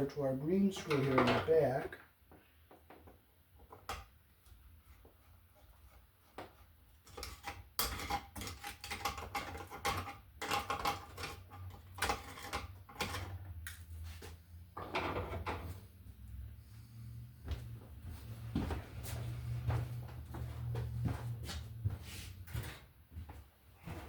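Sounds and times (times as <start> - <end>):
tools clicking and scraping wire: 0.7 - 2.0, 6.5 - 13.9.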